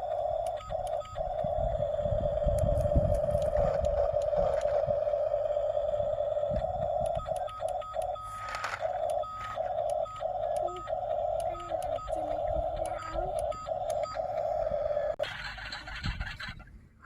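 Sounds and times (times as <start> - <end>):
low rumble: 0.0 - 8.2
electronic alarm tone: 0.0 - 15.2
higher short beep: 5.3 - 15.1.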